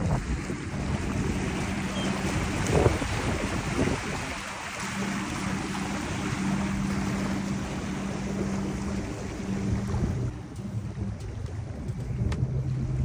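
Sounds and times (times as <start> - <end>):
strong wind on microphone: 0.0 - 4.5
surf and water noise: 0.0 - 13.0
steady low hum: 0.2 - 13.0.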